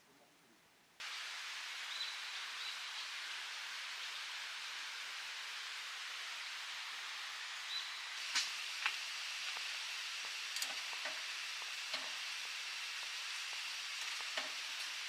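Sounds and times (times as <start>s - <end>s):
food sizzling in a pan: 1.0s - 15.0s
oil popping and crackling: 8.1s - 15.0s.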